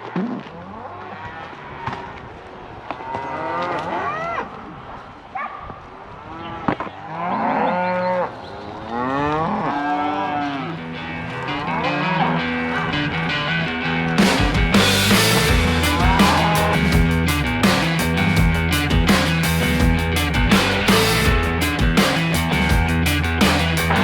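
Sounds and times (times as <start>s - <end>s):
cows mooing: 6.3s - 14.2s, 15.2s - 16.9s.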